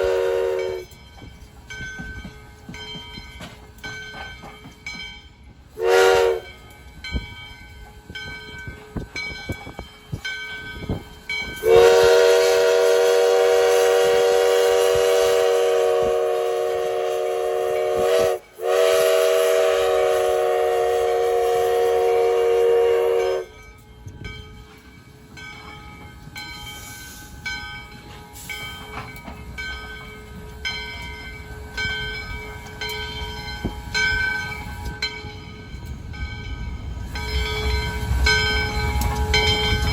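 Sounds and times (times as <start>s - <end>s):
steam locomotive whistle: 0.0s - 0.9s, 5.8s - 6.6s, 11.5s - 23.6s.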